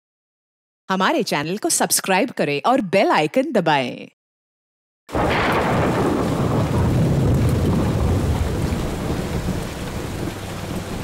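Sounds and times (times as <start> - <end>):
deep thunder rumble: 5.1 - 11.0
heavy rain pouring: 5.1 - 11.0.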